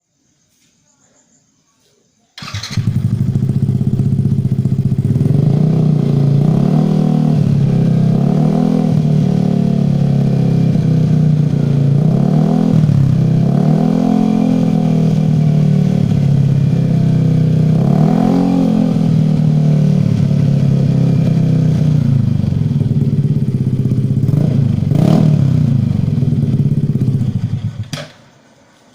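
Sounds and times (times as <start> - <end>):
scooter engine idling and revving: 2.4 - 28.9.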